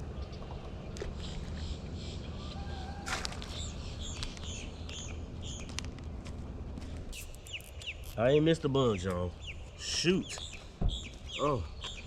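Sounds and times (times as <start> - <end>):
bird chirping: 0.0 - 6.0, 7.1 - 12.0
steady low rumble: 3.4 - 8.0.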